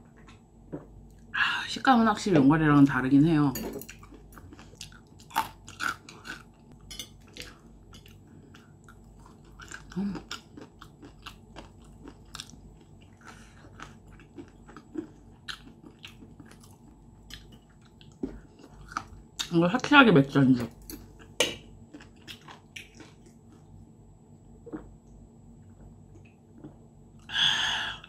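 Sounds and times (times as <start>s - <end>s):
crunchy chewing: 3.9s - 19.5s, 21.0s - 23.8s.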